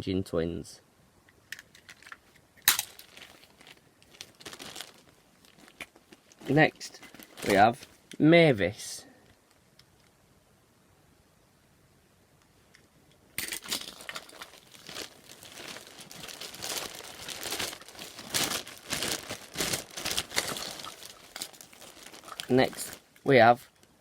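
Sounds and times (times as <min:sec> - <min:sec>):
bag crinkling and rustling: 0:01.7 - 0:08.1, 0:13.4 - 0:23.4.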